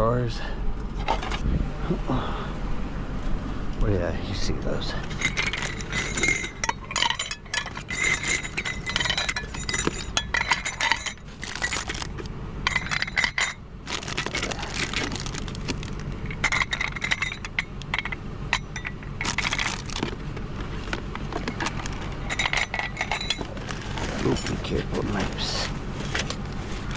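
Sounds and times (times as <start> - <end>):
steady low hum: 0.0 - 26.9
glass jars clinking: 5.0 - 20.2, 21.4 - 24.8.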